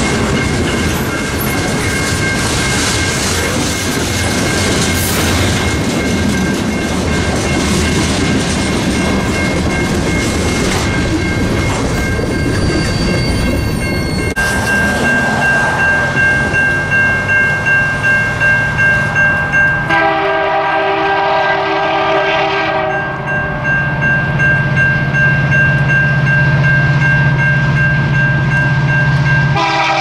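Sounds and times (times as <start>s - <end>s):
train rumbling and rattling past: 0.0s - 30.0s
thin high squeal: 12.3s - 15.2s.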